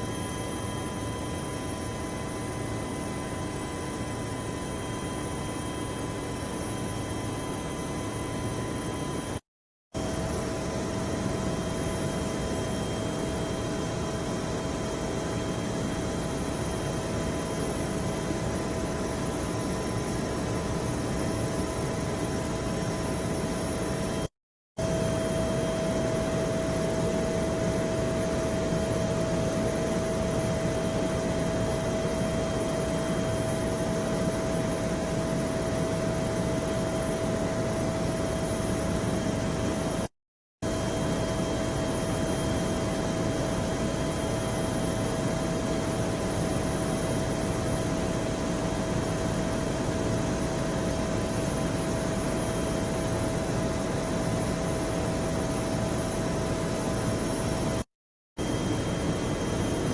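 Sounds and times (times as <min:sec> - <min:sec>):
aircraft drone in flight: 0:00.0 - 0:59.9
steady whine: 0:10.0 - 0:40.1, 0:58.4 - 0:59.9.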